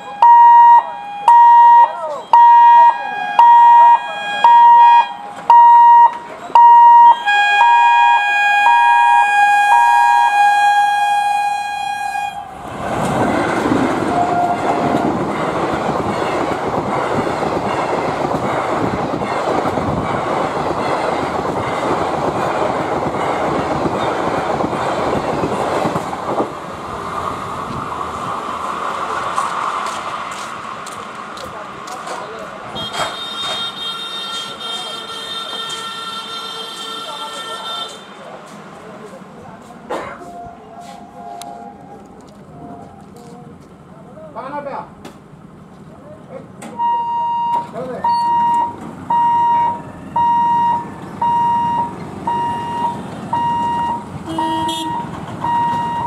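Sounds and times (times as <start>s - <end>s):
locomotive horn blasts: 0.0s - 5.9s, 6.6s - 12.6s, 14.1s - 15.1s, 32.7s - 38.2s, 52.3s - 56.0s
passenger coaches running past: 11.4s - 44.1s
wheels clattering on rails: 12.6s - 33.8s, 47.5s - 56.0s.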